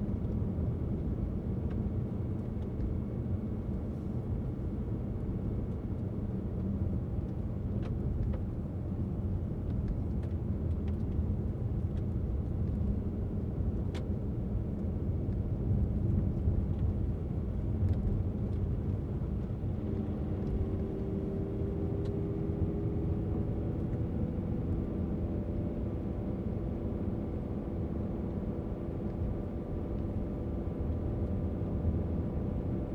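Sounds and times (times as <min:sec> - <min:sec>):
engine and tyre rumble: 0:00.0 - 0:32.9
engine hum rising in pitch: 0:19.4 - 0:32.9.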